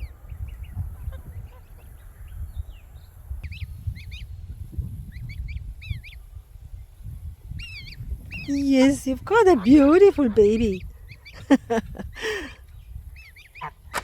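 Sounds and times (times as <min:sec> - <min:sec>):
gosling peeping: 0:03.4 - 0:04.4, 0:05.1 - 0:06.3, 0:07.5 - 0:12.5, 0:13.1 - 0:14.0.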